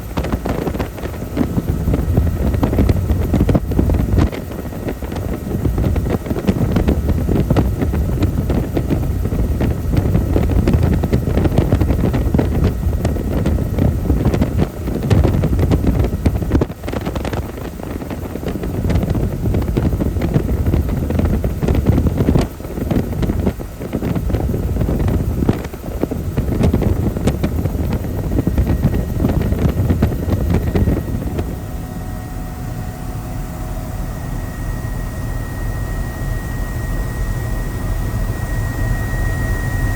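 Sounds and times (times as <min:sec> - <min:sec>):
helicopter rotor and engine: 0:00.0 - 0:39.9
wind buffeting microphone: 0:00.0 - 0:39.9
faint high whine: 0:18.7 - 0:39.9.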